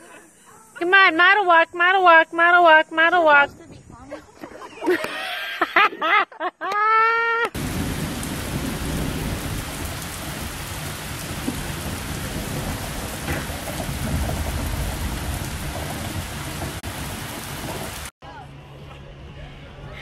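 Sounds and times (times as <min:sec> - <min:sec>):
heavy rain on pavement: 0:07.6 - 0:18.1.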